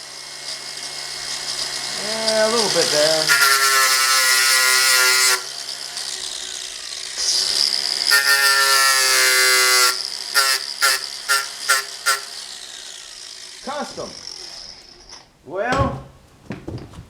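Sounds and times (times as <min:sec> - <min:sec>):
hand-worked sawmill whirring: 0:00.0 - 0:15.4.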